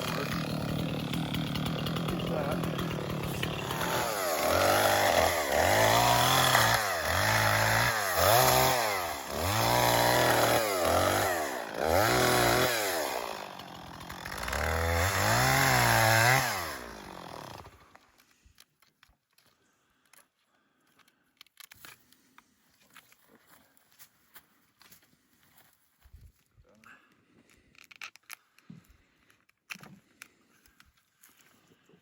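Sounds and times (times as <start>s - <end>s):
chainsaw revving: 0.0s - 17.9s.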